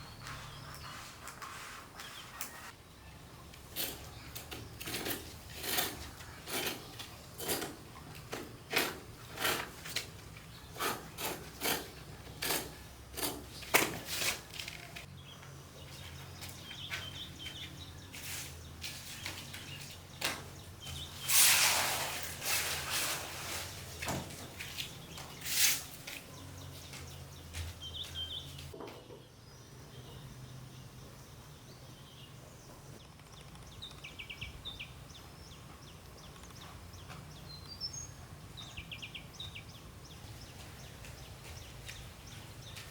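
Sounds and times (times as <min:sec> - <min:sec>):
short scraping strokes: 0:21.2 - 0:24.0.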